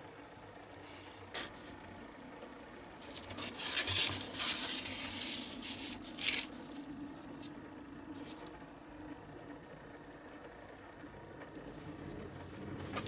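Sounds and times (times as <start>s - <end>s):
scraping and rubbing strokes: 3.0s - 7.6s.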